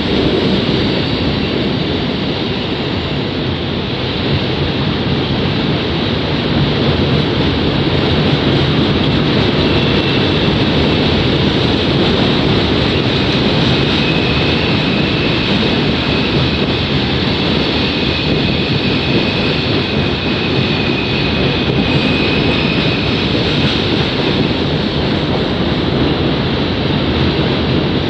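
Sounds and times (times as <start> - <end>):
freight train rolling on rails: 0.0 - 28.0.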